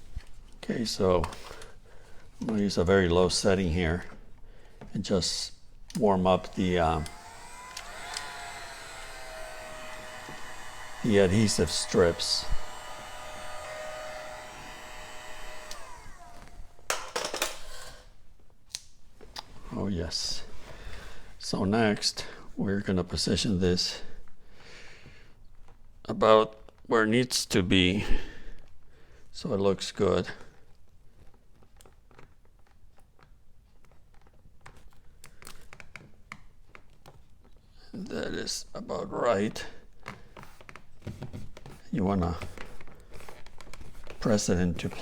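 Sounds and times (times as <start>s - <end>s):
heat gun blowing with motor whine: 6.3s - 18.1s
sharp clicks and knocks: 15.6s - 17.7s
faint clicks and crinkles: 30.4s - 37.7s.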